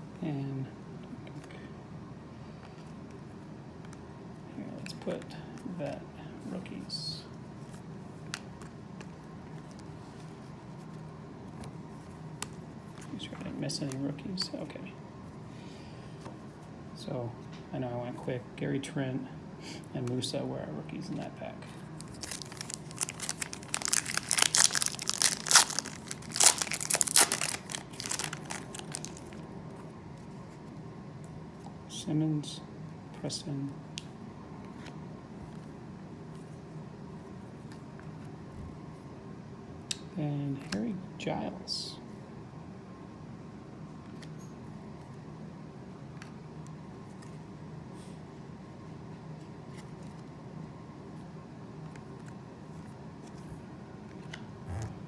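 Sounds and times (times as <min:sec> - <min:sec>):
low room hum: 0:00.0 - 0:55.0
trading cards being handled: 0:21.7 - 0:30.8
plastic wrapper crinkling: 0:22.0 - 0:29.4.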